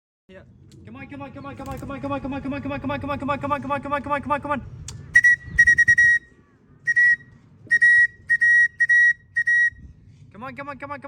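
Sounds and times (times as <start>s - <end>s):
whistle short sharp blasts: 5.1s - 6.3s, 6.9s - 9.8s.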